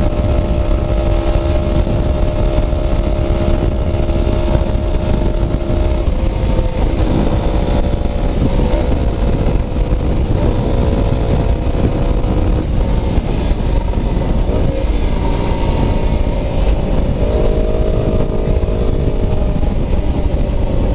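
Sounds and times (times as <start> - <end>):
motorcycle engine riding: 0.0 - 20.9.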